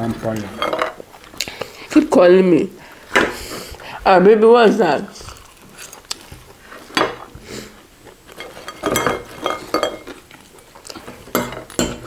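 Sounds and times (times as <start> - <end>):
cutlery clinking against dishes: 0.2 - 1.0, 8.3 - 12.0.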